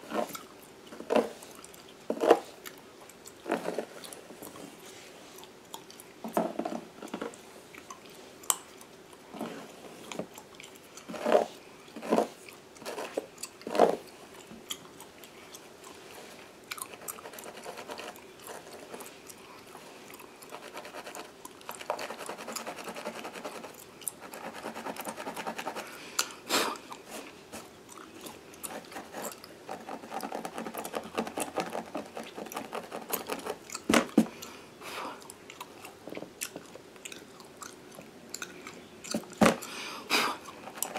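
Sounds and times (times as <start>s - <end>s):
gum chewing with wet smacks: 5.3s - 6.2s, 7.7s - 9.2s, 10.0s - 11.2s, 12.4s - 17.2s, 27.8s - 30.2s, 33.5s - 34.6s, 35.2s - 39.4s.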